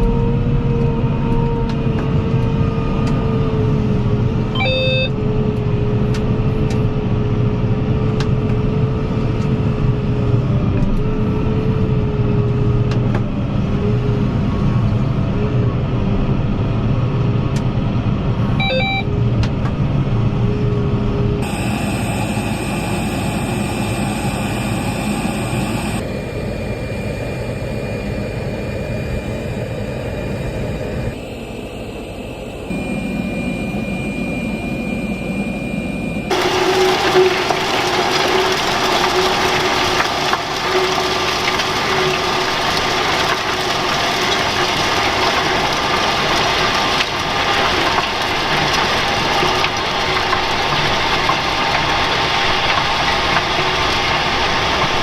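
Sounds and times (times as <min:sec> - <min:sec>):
tractor engine running: 0:17.0 - 0:55.0.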